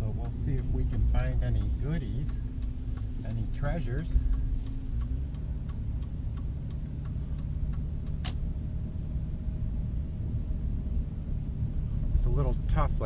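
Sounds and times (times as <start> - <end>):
engine and road rumble: 0.0 - 13.0
turn signal clicking: 0.0 - 13.0
sharp click: 4.3 - 8.4.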